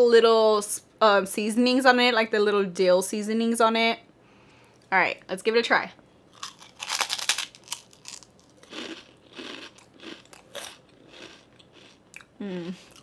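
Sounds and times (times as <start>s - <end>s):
person crunching pork rind: 6.3s - 13.0s.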